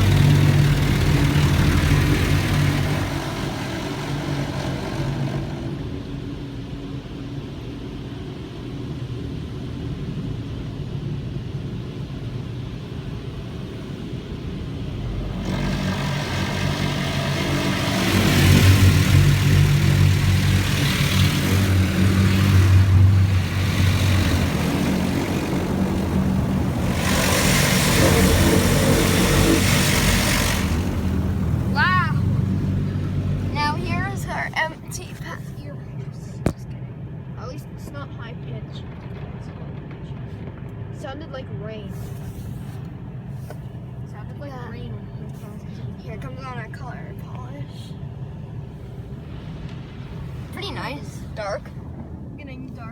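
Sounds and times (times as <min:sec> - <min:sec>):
car wash water spray hissing: 0:00.0 - 0:06.0, 0:12.5 - 0:35.8
low pump hum: 0:00.0 - 0:52.9.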